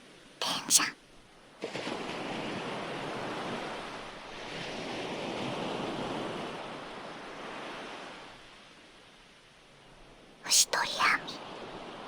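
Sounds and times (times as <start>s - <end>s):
ocean waves washing onto shore: 1.6s - 8.8s.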